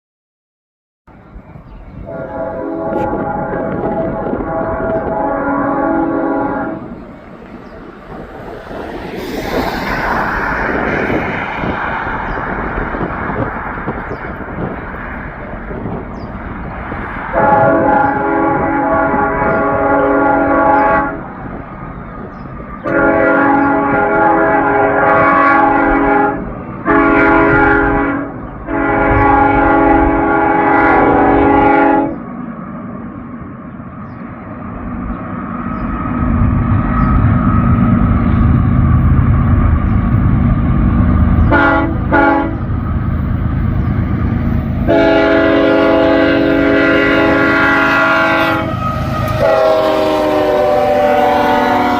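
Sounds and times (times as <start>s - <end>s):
locomotive engine passing: 1.1s - 51.9s
locomotive air horn chord: 2.0s - 7.0s, 17.3s - 21.4s, 22.8s - 32.2s, 41.4s - 42.7s, 44.8s - 51.9s.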